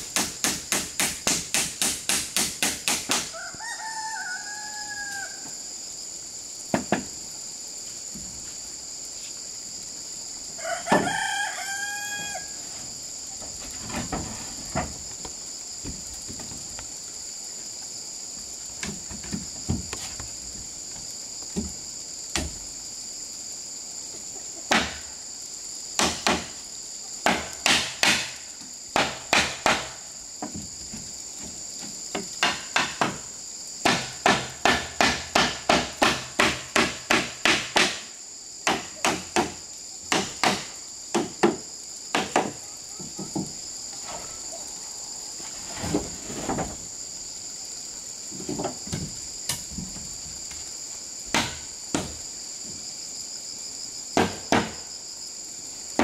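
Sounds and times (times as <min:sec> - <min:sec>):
insects buzzing: 0:00.0 - 0:56.0
rooster crowing: 0:03.2 - 0:05.6, 0:10.6 - 0:12.7.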